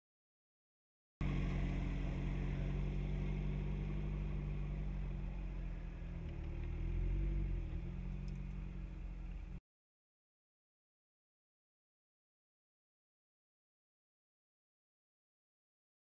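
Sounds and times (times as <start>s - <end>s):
car engine running: 1.2s - 9.6s.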